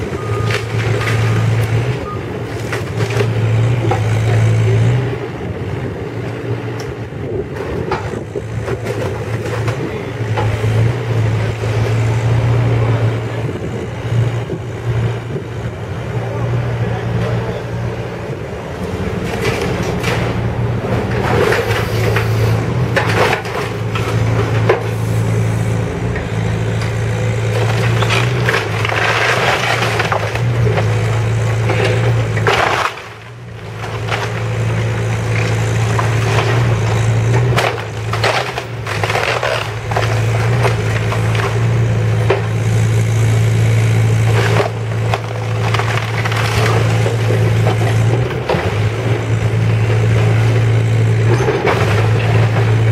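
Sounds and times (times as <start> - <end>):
wood and debris crunching: 0.0 - 5.0, 7.4 - 13.0, 18.8 - 52.9
diesel engine running: 0.0 - 52.9.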